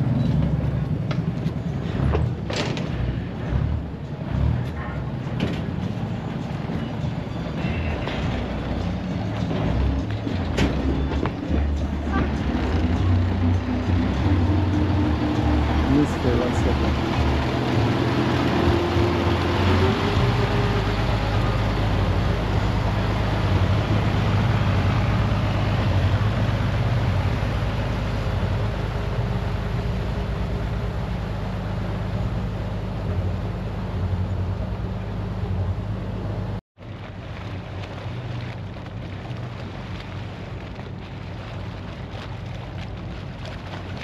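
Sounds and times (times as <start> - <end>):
diesel train drone: 0.0 - 38.8.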